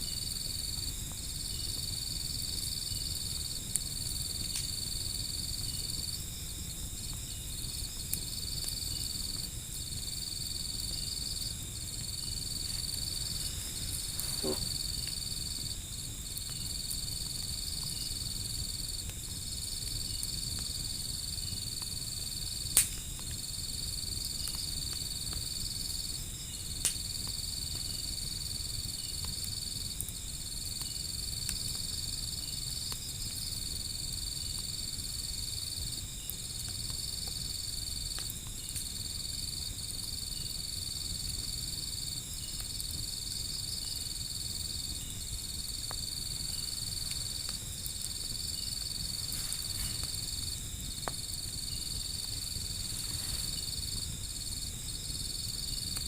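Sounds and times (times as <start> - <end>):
insects trilling: 0.0 - 56.0
wood fire rumbling: 0.1 - 40.2, 40.8 - 56.0
burning wood popping: 0.2 - 25.6, 42.2 - 56.0.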